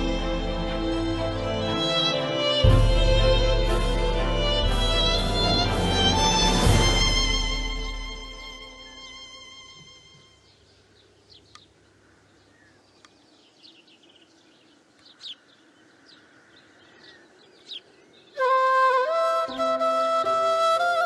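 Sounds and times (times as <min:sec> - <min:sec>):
loud music: 0:00.0 - 0:09.1
birds chirping: 0:08.9 - 0:19.6.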